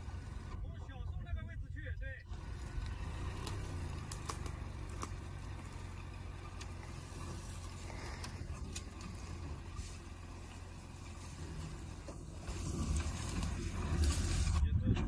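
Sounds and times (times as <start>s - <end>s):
car engine running: 0.0s - 15.0s
scattered clicks: 2.8s - 5.2s.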